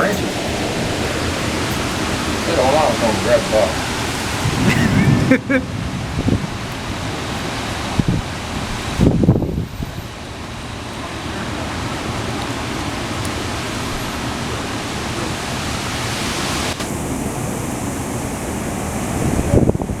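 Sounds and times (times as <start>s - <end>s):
storm wind rushing: 0.0s - 20.0s.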